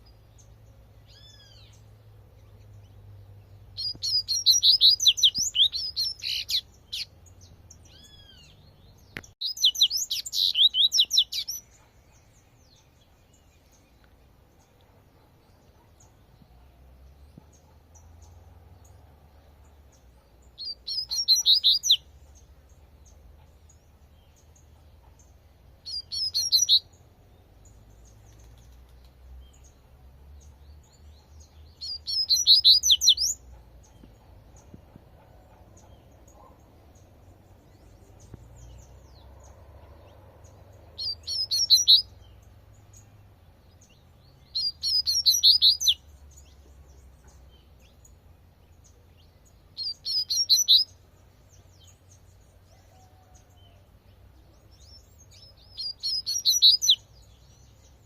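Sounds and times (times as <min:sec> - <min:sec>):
bird singing high phrases: 0:00.0 - 0:58.0
faint low rumble: 0:33.4 - 0:44.8.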